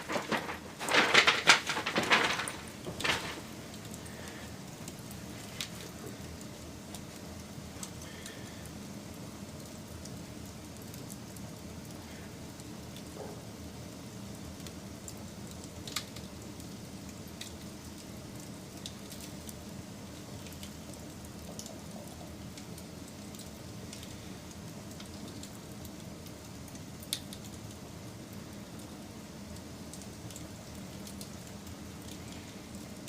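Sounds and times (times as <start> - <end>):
sharp fire pops: 0.0 - 5.0
wood fire rumbling and crackling: 0.0 - 33.0.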